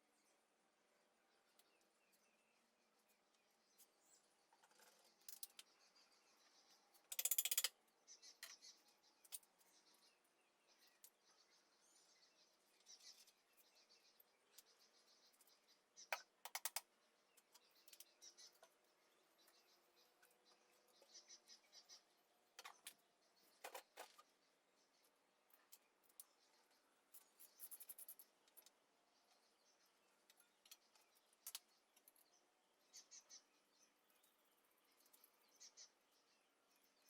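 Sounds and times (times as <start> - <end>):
faint bird chirps: 0.0 - 37.0
rapid metallic ratchet clicking: 7.1 - 7.7.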